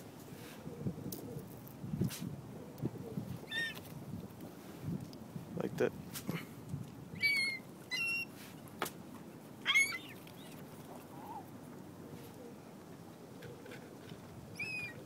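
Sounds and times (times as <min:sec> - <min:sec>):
short high bird calls: 0:03.5 - 0:03.8, 0:07.2 - 0:08.4, 0:09.7 - 0:10.6, 0:14.6 - 0:15.0.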